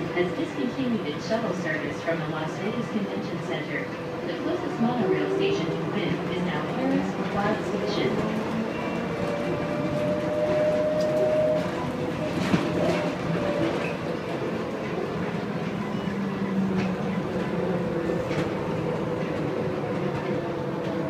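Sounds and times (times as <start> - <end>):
train wheels rumbling on guideway: 0.0 - 21.0.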